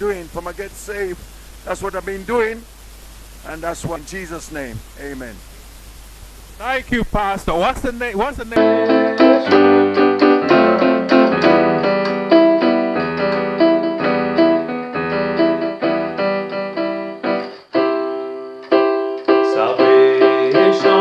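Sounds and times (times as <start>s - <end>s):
keyboard playing piano chords: 8.6s - 21.0s.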